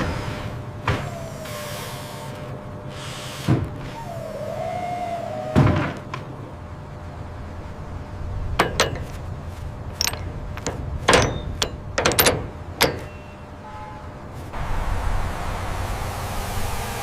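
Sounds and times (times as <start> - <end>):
machinery hum: 0.0 - 17.0
sharp knocks and clanks: 8.5 - 13.4.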